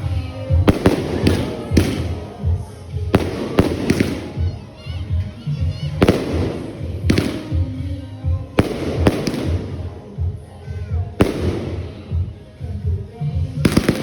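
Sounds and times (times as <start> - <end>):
fireworks bangs: 0.0 - 10.4, 11.2 - 12.4, 13.6 - 14.0
music with steady beat: 0.0 - 14.0.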